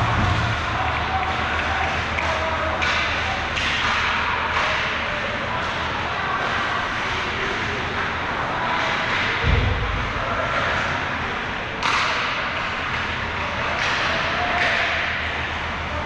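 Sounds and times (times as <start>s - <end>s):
arena crowd din: 0.0s - 16.0s
hockey stick striking puck: 0.1s - 5.0s, 11.8s - 15.2s
heavy low thud: 9.4s - 10.2s.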